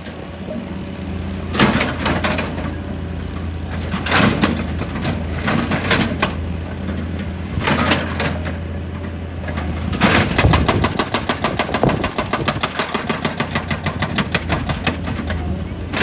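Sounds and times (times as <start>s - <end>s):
excavator engine running: 0.0s - 16.0s
hydraulic rock breaker hammering: 1.5s - 2.8s, 3.7s - 6.4s, 9.5s - 16.0s.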